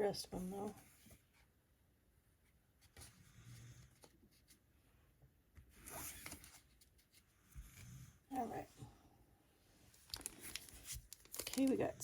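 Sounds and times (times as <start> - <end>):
card wrappers rustling: 9.9 - 12.0.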